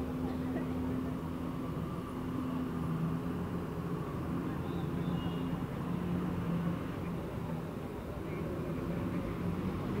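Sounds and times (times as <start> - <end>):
street rumble: 0.0 - 10.0
vehicle engines droning: 0.0 - 10.0.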